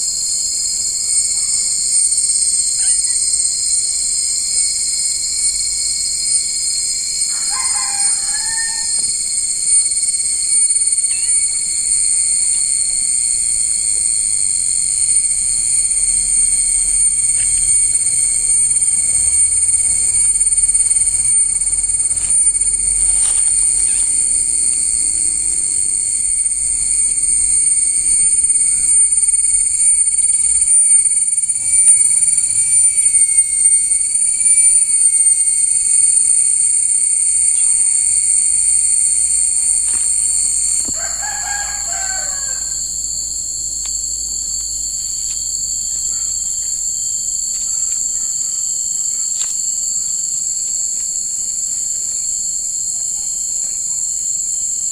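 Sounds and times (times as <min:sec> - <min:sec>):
insects droning: 0:00.0 - 0:54.9.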